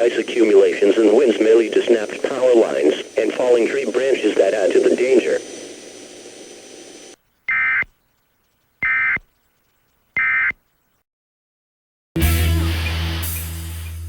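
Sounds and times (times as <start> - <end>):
low hum and hiss: 0.0 - 10.1
buzzy digital data tones: 0.0 - 10.5.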